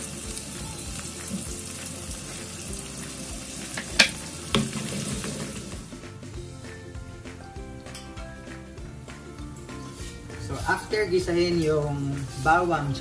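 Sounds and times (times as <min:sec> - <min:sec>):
garlic and onions sizzling: 0:00.0 - 0:13.0.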